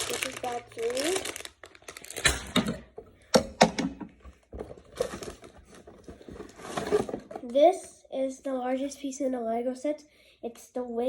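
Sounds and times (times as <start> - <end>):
plastic bricks rattling in bags: 0.0 - 2.9, 4.5 - 7.5
plastic bags rustling: 0.0 - 3.0, 4.4 - 7.5.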